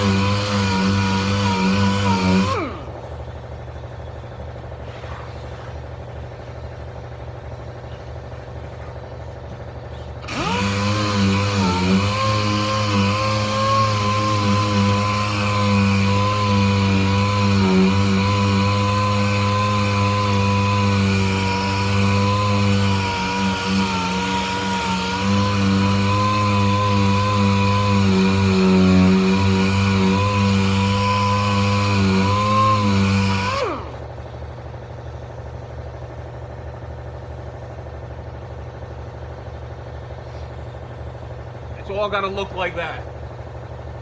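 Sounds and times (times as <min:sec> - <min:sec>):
power tool running under load: 0:00.0 - 0:04.9, 0:05.9 - 0:44.0.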